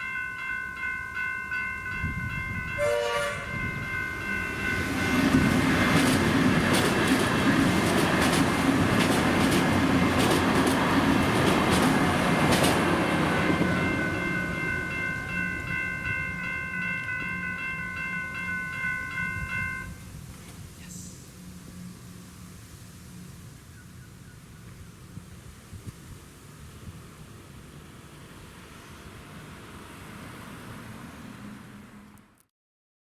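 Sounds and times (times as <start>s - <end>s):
level crossing bells ringing: 0.0s - 5.5s, 13.4s - 20.0s
train wheels clacking over rail joints: 5.3s - 14.0s.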